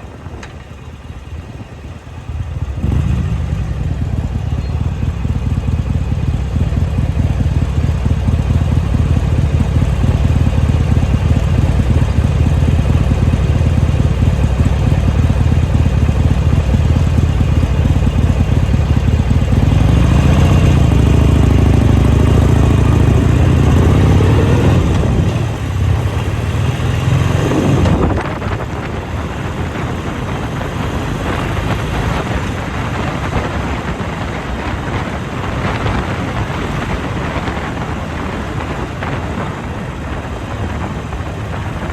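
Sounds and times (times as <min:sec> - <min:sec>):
motorcycle engine running: 0:00.0 - 0:41.9
wind rushing over microphone: 0:00.0 - 0:41.9.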